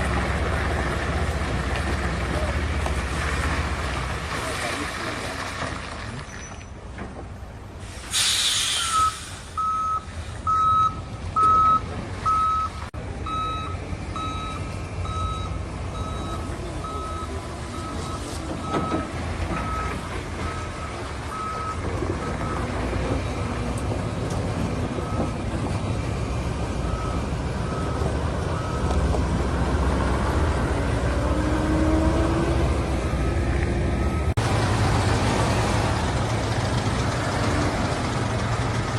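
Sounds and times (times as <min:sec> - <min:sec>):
heavy diesel machinery rumbling: 0:00.0 - 0:38.9
air brake hiss: 0:07.8 - 0:09.6
reversing alarm beeping: 0:08.9 - 0:22.7.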